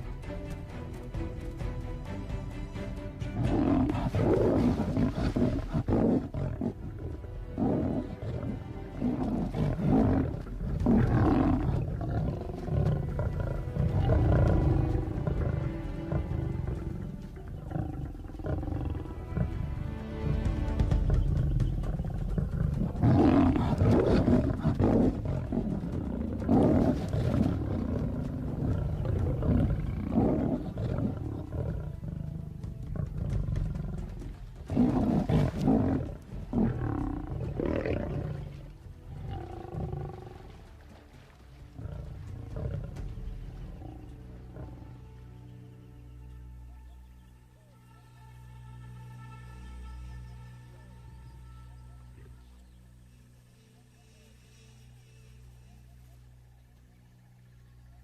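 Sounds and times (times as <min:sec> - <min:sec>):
film music: 0:00.0 - 0:58.0
lions roaring: 0:03.4 - 0:19.6, 0:21.1 - 0:40.6, 0:41.7 - 0:45.0.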